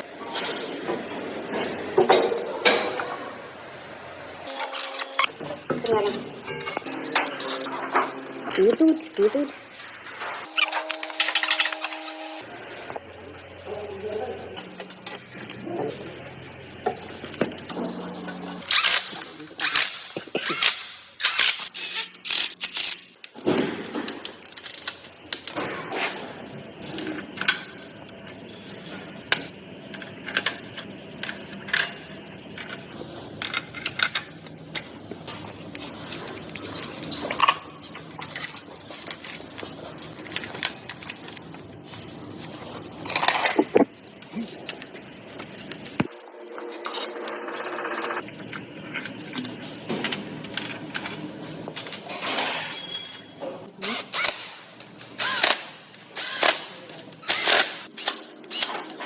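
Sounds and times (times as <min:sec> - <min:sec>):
metal tools clinking: 0:04.5 - 0:09.4, 0:10.4 - 0:12.4, 0:24.2 - 0:25.6, 0:33.4 - 0:46.1, 0:50.5 - 0:59.0.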